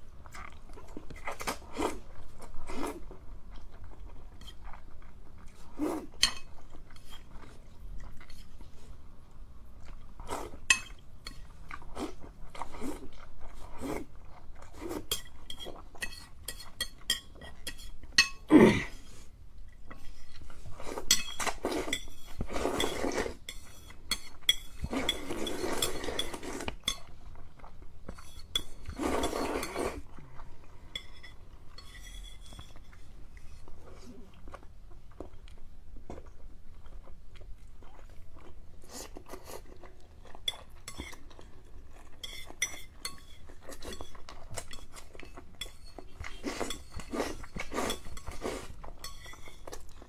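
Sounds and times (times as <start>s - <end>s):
slurping and chewing: 0.2s - 9.0s, 9.7s - 50.0s
utensils clinking against bowl: 49.0s - 49.7s.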